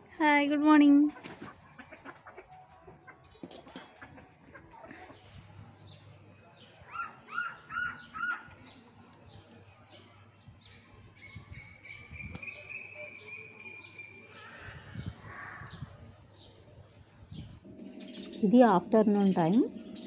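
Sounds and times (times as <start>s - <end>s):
loud arched bird calls: 6.9s - 8.7s, 12.6s - 16.0s.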